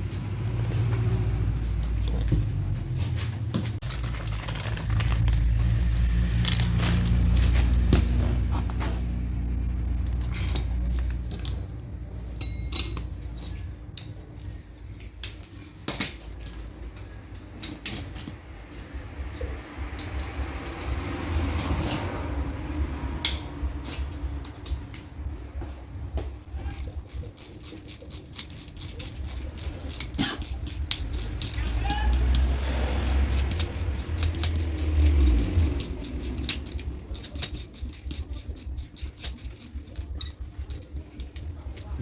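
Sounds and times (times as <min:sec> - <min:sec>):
low rumble: 0:00.0 - 0:12.4
metal tools clinking and clattering: 0:00.1 - 0:02.6, 0:03.8 - 0:20.8, 0:26.5 - 0:42.0.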